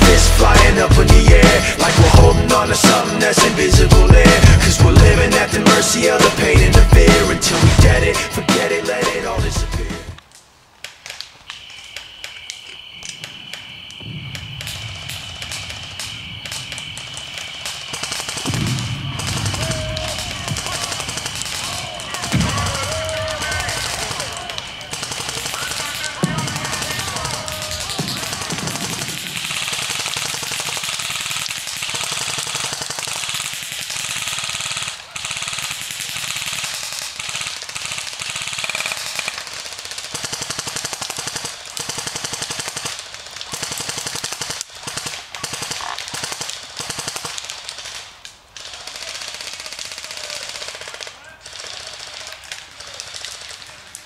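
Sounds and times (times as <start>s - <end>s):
rapid automatic gunfire: 14.4s - 54.0s.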